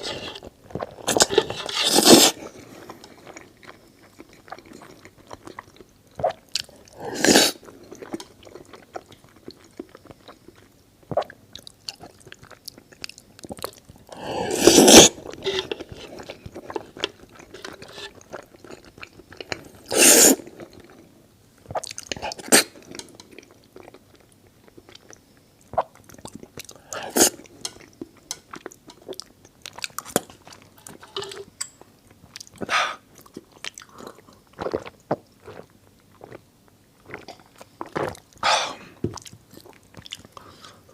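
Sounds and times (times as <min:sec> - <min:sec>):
noisy bites or slurps: 0:00.0 - 0:02.5, 0:14.3 - 0:16.2, 0:19.9 - 0:20.4
chewing with mouth clicks: 0:32.1 - 0:36.4, 0:39.1 - 0:40.6.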